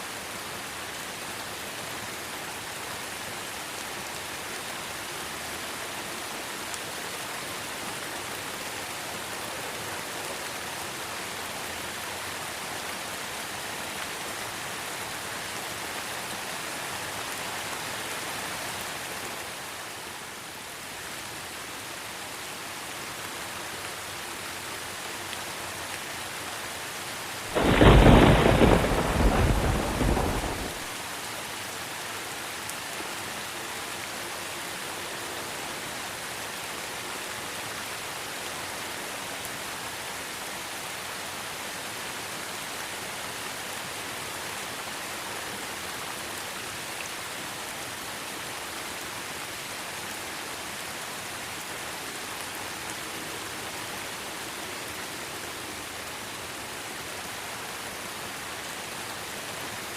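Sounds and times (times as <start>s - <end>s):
steady rain falling: 0.0s - 59.9s
thunder rumble: 27.5s - 30.9s.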